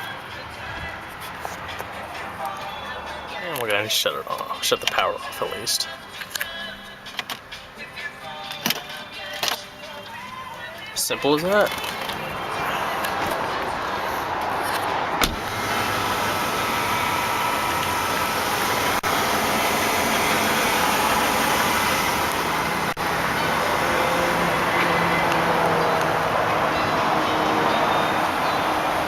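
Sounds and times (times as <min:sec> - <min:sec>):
motor vehicle noise: 0:00.0 - 0:29.0.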